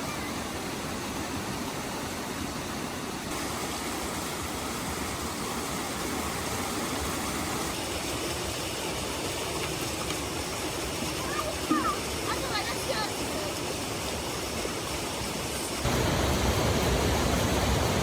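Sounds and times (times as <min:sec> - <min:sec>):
heavy rain: 0:15.6 - 0:18.0.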